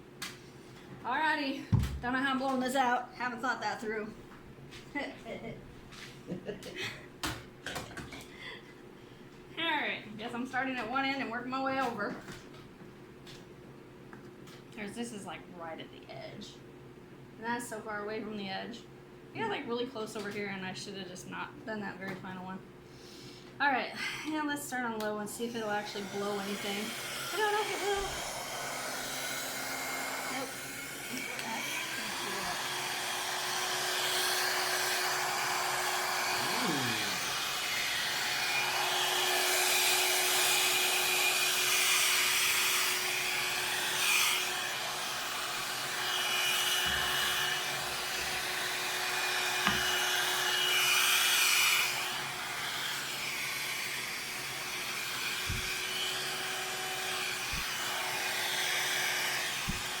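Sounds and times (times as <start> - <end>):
hair dryer running: 24.9 - 60.0.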